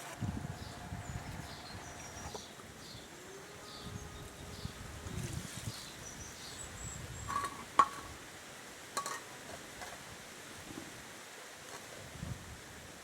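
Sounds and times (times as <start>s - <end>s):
kitchenware clinking: 9.0s - 9.3s.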